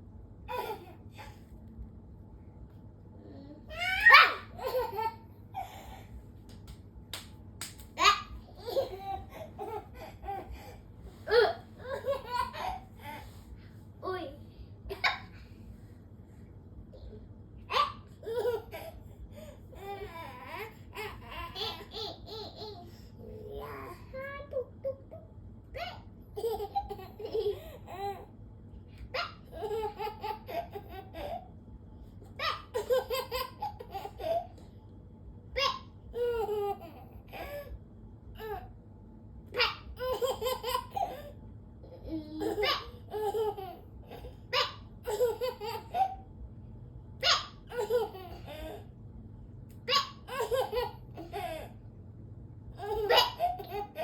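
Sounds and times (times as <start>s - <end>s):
baby laughing: 17.7s - 19.0s, 39.6s - 41.4s, 42.3s - 46.2s, 47.2s - 48.8s, 49.9s - 51.7s, 52.8s - 54.0s.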